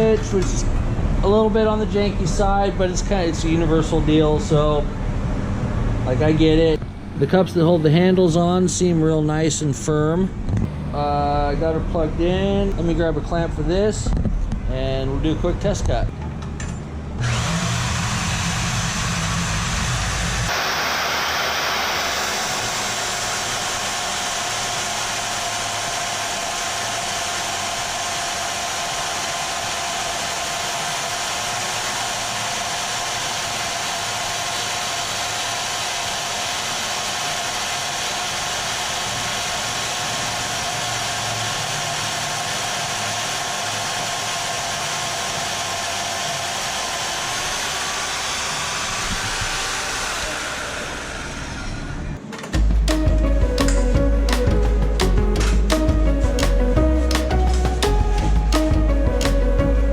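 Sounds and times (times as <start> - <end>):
band saw motor whine: 16.1 - 59.9.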